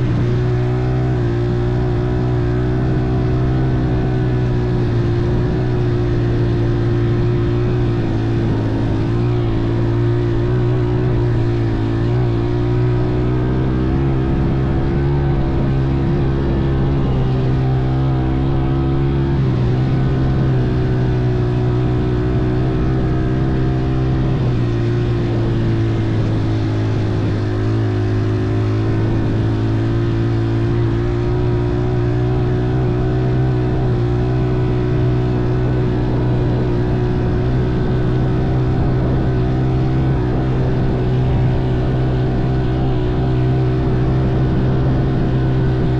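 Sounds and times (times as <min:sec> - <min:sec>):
motorcycle engine cruising: 0:00.0 - 0:45.9.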